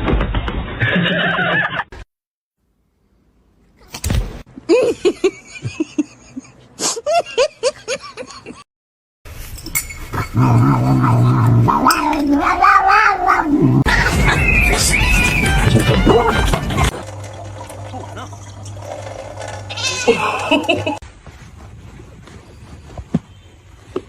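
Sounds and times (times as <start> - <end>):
cats meowing: 11.7 - 16.8, 19.7 - 20.7.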